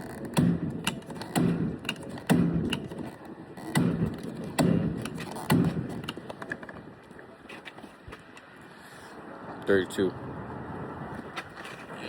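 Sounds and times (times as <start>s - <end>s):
gas pump nozzle click: 0.8s - 2.9s.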